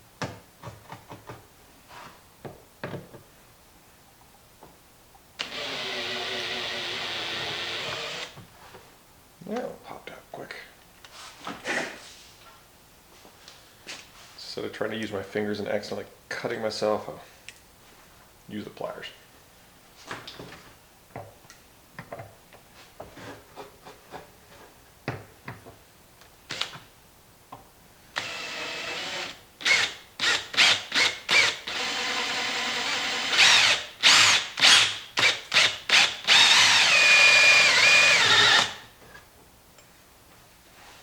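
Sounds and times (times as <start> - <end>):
power drill drilling out rivets: 5.4 - 8.4, 28.2 - 38.8.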